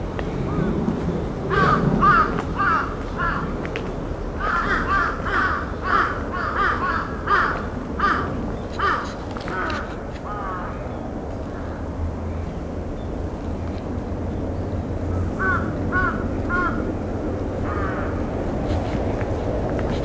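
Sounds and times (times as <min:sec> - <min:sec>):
birds calling: 0:01.5 - 0:13.6, 0:14.3 - 0:16.9.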